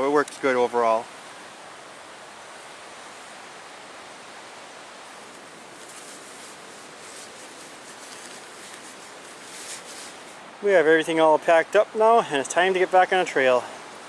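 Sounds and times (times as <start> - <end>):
lake surf: 0.0 - 14.0
faint rustling: 5.1 - 10.5.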